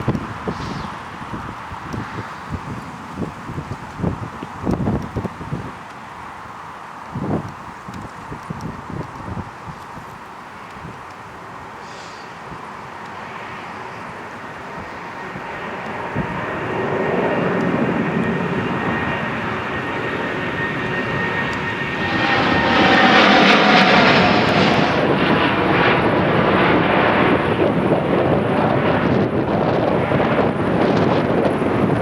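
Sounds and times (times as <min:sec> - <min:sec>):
jet engines roaring: 0:00.0 - 0:32.0
faint engine whine: 0:09.4 - 0:32.0.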